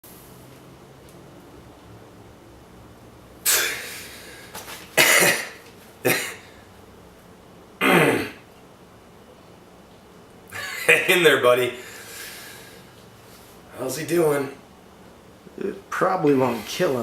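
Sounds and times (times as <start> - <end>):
person coughing: 3.5 - 3.9, 5.0 - 6.5, 7.8 - 8.4.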